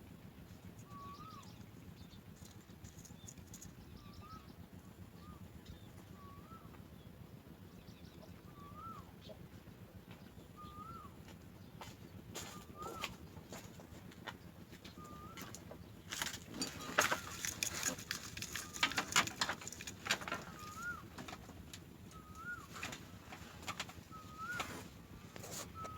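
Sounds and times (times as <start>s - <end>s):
chicks chirping begging: 10.3s - 13.7s, 14.6s - 25.9s.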